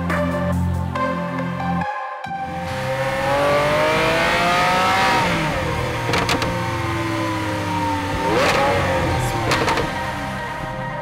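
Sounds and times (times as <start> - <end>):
car engine revving: 2.4 - 11.0
exhaust cracks: 5.7 - 6.9, 8.2 - 10.0.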